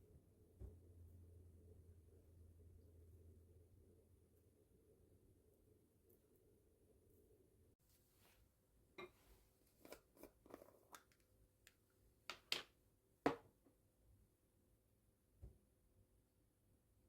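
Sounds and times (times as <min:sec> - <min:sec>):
clicks and taps of objects handled: 0:09.8 - 0:12.7, 0:13.3 - 0:13.7.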